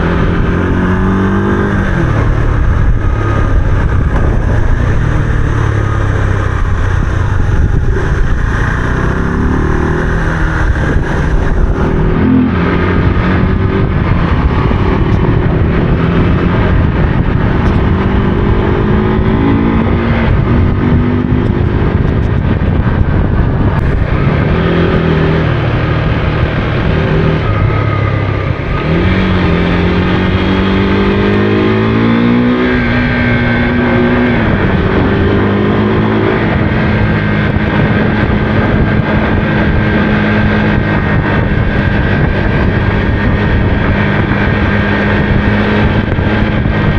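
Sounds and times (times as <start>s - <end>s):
motorcycle engine revving: 0.0s - 46.9s
wind and road noise: 0.0s - 46.9s.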